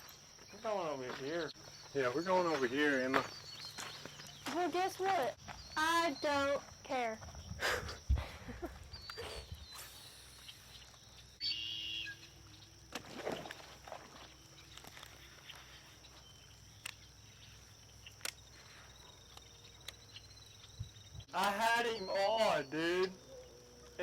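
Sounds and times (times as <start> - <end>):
high chirp: 8.9 - 12.7.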